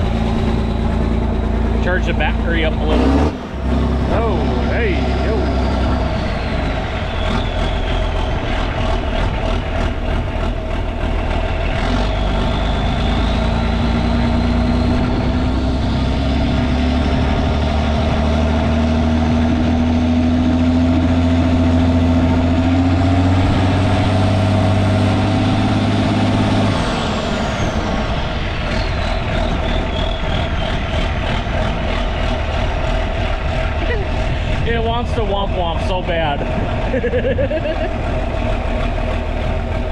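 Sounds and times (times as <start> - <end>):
diesel tractor engine running: 0.0 - 39.9
turbo whistle: 4.9 - 9.0, 28.7 - 31.1.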